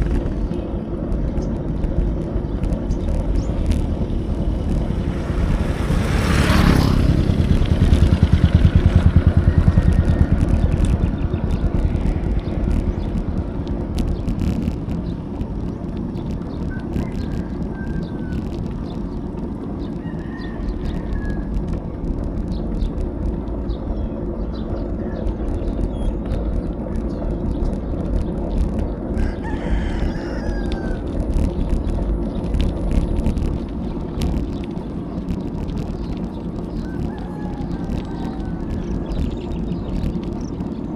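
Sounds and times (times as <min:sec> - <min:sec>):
wind and road noise: 0:00.0 - 0:40.9
roosters crowing faintly: 0:29.1 - 0:31.5, 0:36.6 - 0:39.4.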